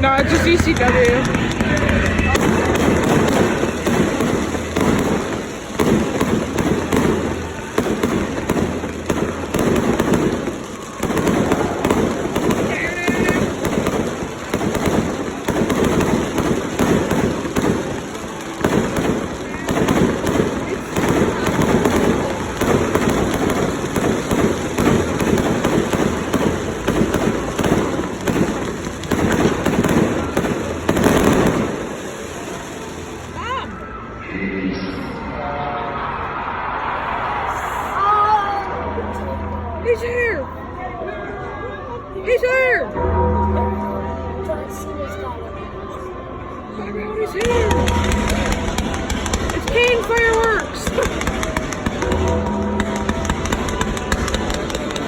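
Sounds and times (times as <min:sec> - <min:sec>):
fireworks crackling and banging: 0:00.0 - 0:34.2, 0:47.3 - 0:55.0.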